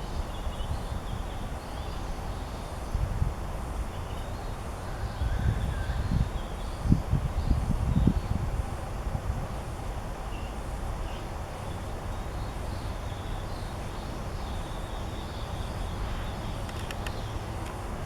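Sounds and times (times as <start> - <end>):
sharp clicks: 16.6 - 17.8.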